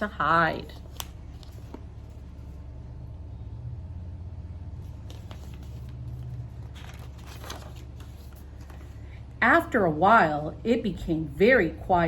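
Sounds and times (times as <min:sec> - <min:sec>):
low steady rumble: 0:00.0 - 0:12.0
book page turning: 0:00.6 - 0:02.4, 0:04.8 - 0:09.0.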